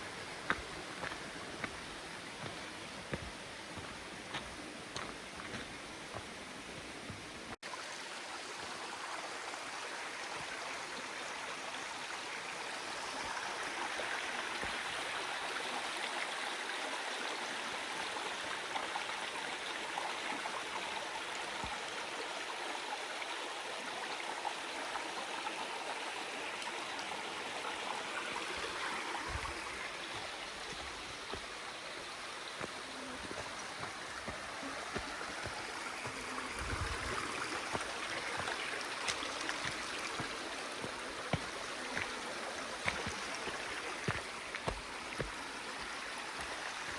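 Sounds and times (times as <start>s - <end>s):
stream water flowing: 0.0s - 46.9s.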